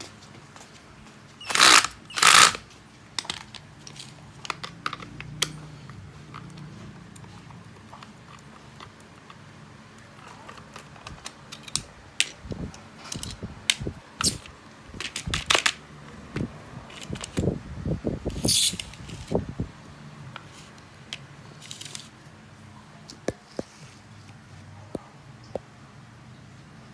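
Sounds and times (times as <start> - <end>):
plastic drill parts clicking and scraping: 1.4 - 6.5, 10.1 - 17.5, 18.3 - 19.4, 20.4 - 22.1.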